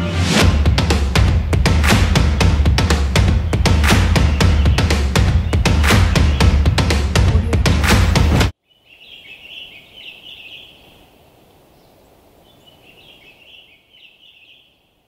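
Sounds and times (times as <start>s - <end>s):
music: 0.0s - 8.5s
faint birdsong twittering: 3.2s - 6.8s, 8.6s - 15.0s
quiet steady hiss: 8.6s - 15.0s.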